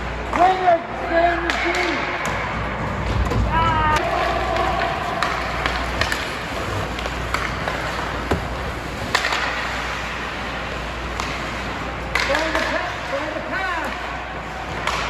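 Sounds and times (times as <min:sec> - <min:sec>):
skates scraping ice: 0:00.1 - 0:15.0
hockey sticks clacking on puck: 0:01.4 - 0:15.0
rink noise: 0:04.0 - 0:12.0.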